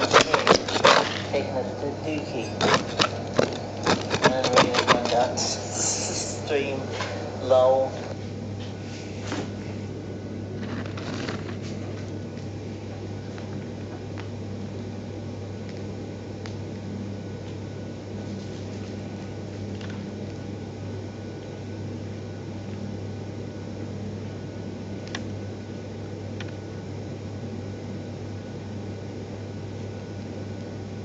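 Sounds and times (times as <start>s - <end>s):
fan humming: 0.0s - 31.0s.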